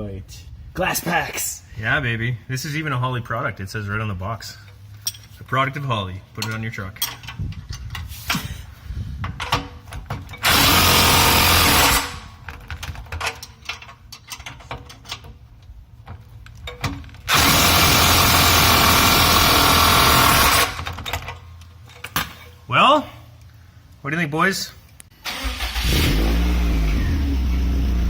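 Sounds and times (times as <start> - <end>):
metal parts clinking: 5.0 - 5.4, 6.4 - 8.1, 11.8 - 15.4
power tool running: 10.4 - 12.1, 17.3 - 20.8.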